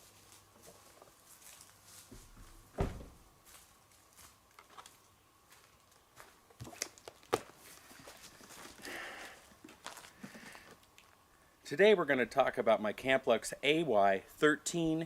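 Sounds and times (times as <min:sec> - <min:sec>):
low thump: 0:02.8 - 0:03.2.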